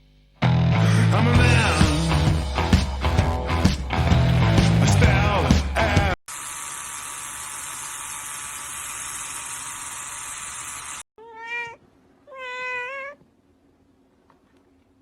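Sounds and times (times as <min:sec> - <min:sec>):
cat meowing: 0:11.2 - 0:13.2.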